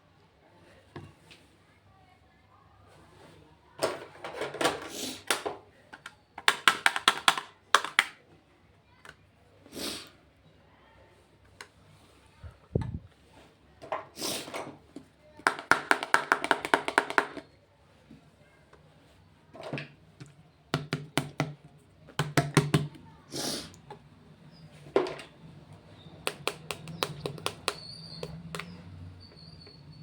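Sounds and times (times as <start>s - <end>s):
fingernail tapping on plastic: 6.0s - 8.1s, 15.4s - 17.4s, 20.7s - 23.0s, 26.2s - 28.7s.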